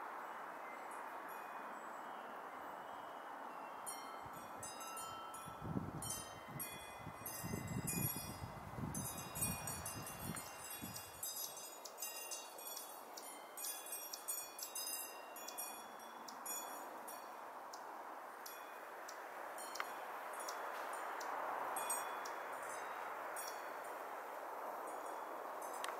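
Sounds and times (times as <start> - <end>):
wind chimes ringing: 3.5 - 17.5, 19.6 - 24.0, 24.8 - 25.9
wind rumble on microphone: 5.4 - 11.4.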